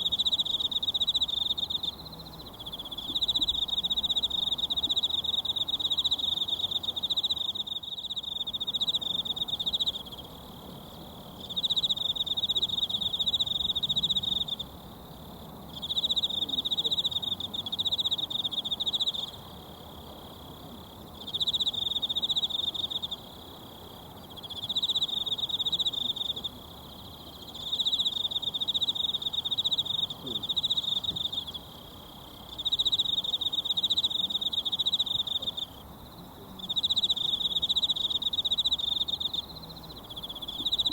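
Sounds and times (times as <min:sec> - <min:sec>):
insect trilling: 0:24.2 - 0:35.9, 0:36.5 - 0:40.9.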